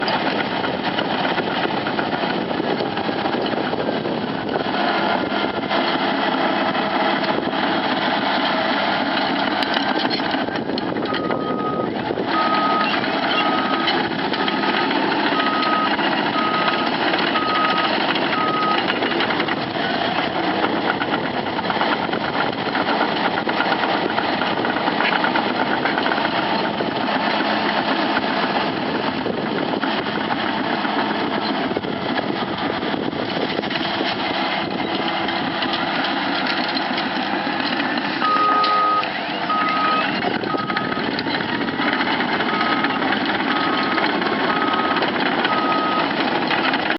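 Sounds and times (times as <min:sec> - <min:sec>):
bulldozer running under load: 0:00.0 - 0:46.9
tracks clattering: 0:00.0 - 0:46.9
reverse alarm beeping: 0:11.1 - 0:13.9, 0:15.3 - 0:19.1, 0:38.2 - 0:41.1, 0:42.4 - 0:46.1.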